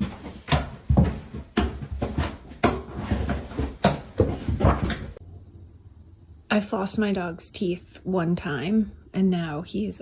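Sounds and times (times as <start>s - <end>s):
irregular knocks and thumps: 0.0s - 5.2s.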